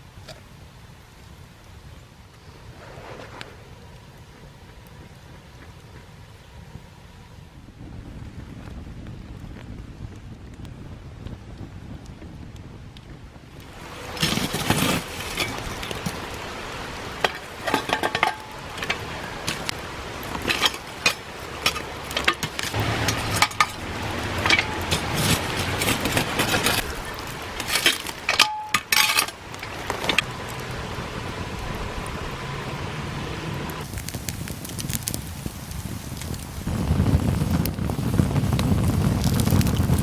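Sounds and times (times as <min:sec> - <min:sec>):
cooking gear clinking: 0:17.1 - 0:19.7, 0:20.3 - 0:27.0, 0:27.6 - 0:29.4.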